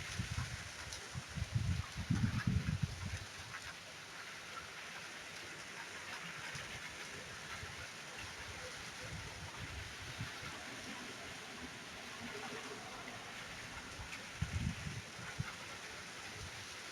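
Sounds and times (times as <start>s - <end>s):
rain falling: 10.1s - 16.9s.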